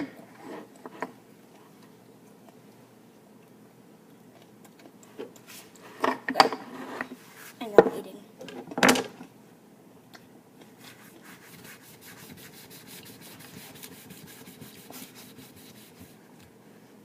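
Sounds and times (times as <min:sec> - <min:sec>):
fast scraping strokes: 0:10.8 - 0:16.2.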